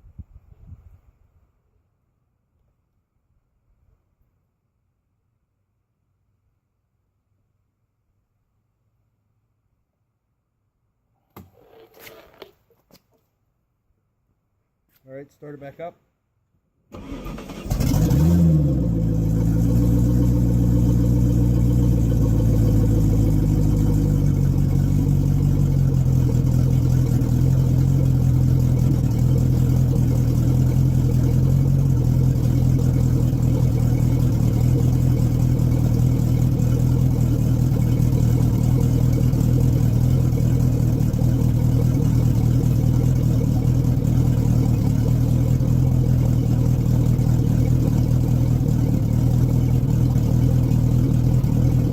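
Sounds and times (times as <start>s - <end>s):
boat engine idling: 19.0s - 51.9s.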